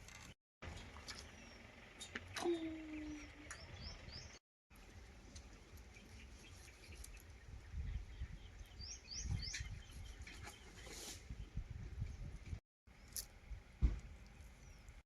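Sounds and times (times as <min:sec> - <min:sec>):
small bird chirping: 0:05.5 - 0:11.6.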